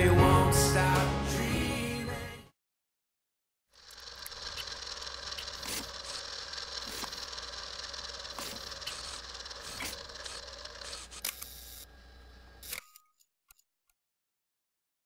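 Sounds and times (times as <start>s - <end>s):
sharp clicks and ticks: 3.8s - 11.5s.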